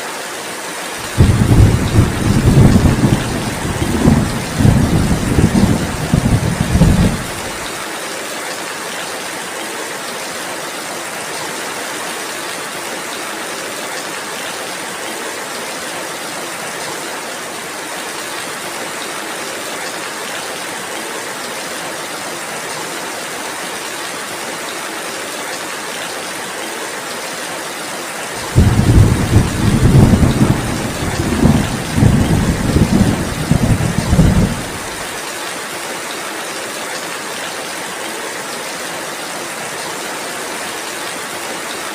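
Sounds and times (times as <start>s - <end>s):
thunder rumbling: 1.0s - 7.6s, 28.4s - 35.1s
rain hissing: 1.0s - 7.8s, 28.3s - 35.2s.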